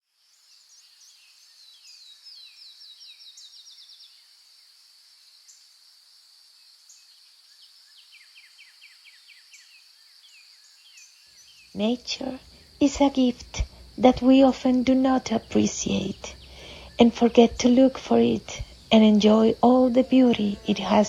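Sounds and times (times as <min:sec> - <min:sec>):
high-pitched insect drone: 0:11.8 - 0:21.0.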